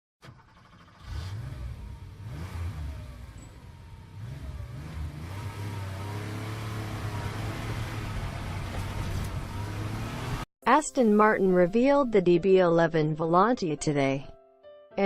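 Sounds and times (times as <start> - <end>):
car engine revving: 0.3 - 10.5.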